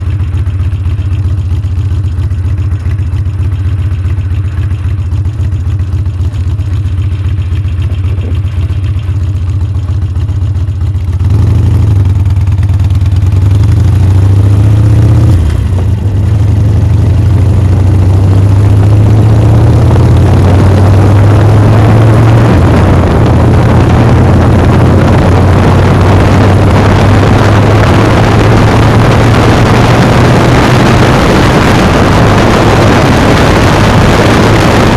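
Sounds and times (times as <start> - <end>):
motorcycle engine revving: 0.0 - 34.9
rushing wind noise: 13.6 - 34.9.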